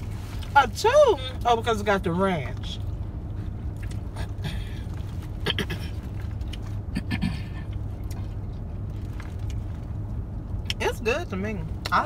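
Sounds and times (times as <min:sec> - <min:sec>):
car cabin hum: 0:00.0 - 0:12.0
clicks and rustles of eating: 0:06.0 - 0:06.8.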